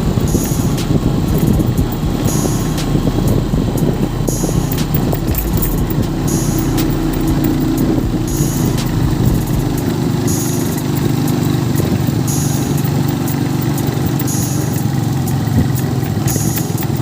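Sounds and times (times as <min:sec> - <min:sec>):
tractor engine running: 0:00.0 - 0:17.0
rattling clicks: 0:00.2 - 0:15.0, 0:15.8 - 0:17.0.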